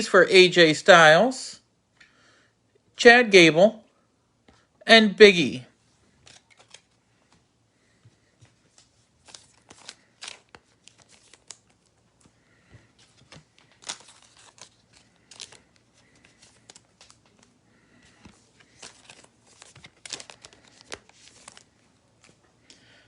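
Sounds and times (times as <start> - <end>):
wrapper crinkling and tearing: 6.2 - 6.9, 9.2 - 12.0, 13.2 - 17.5, 18.7 - 21.8
cards being handled: 6.2 - 7.4, 8.3 - 22.5.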